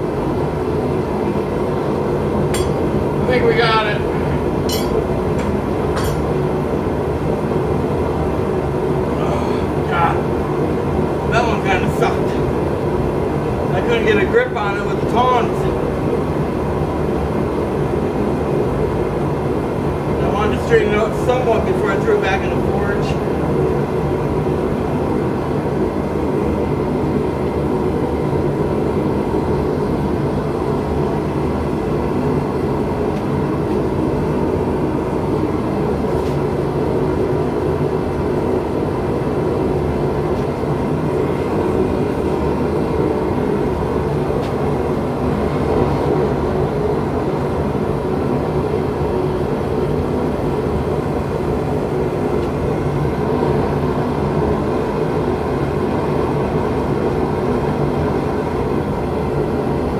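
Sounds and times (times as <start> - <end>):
low hum: 1.2 - 7.3.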